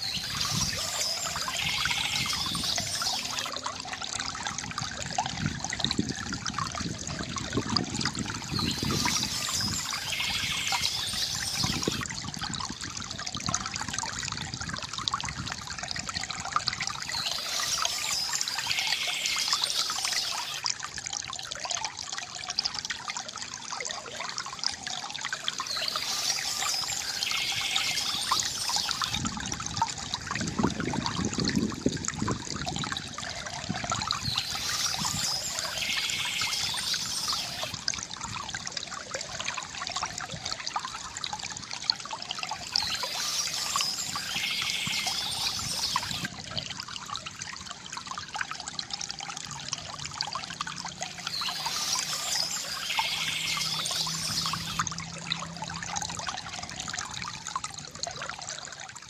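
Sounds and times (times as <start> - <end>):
water trickling from a fountain: 0.0 - 59.0.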